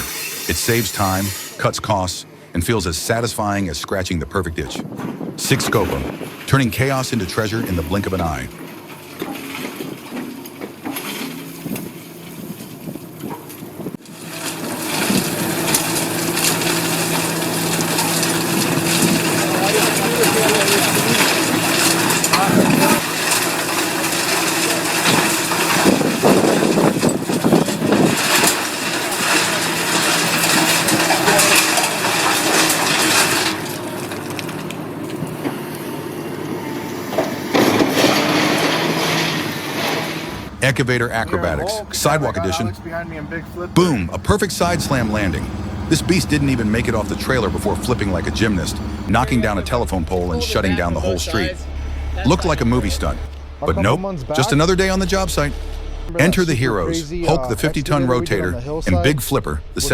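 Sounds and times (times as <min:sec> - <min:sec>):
heavy machine engine running: 0:00.0 - 0:59.9
material rattling and crunching: 0:08.4 - 0:35.7.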